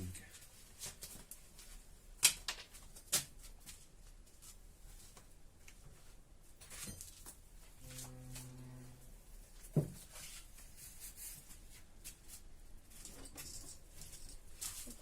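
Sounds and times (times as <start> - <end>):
low steady hum: 7.6 - 9.7
metal parts clicking and clinking: 13.0 - 15.0.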